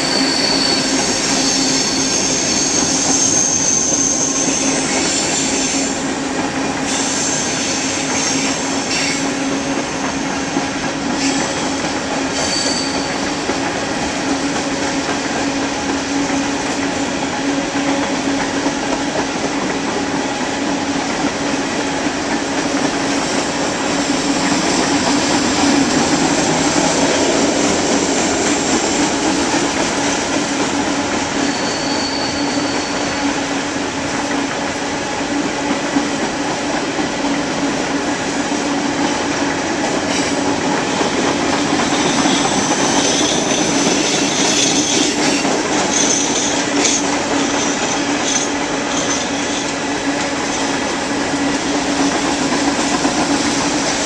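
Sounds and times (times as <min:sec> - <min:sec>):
high-pitched wheel squeals: 0:00.0 - 0:06.0, 0:12.3 - 0:13.4, 0:31.4 - 0:33.4, 0:41.9 - 0:49.8
steel wheels rumbling on rail: 0:00.0 - 0:54.0.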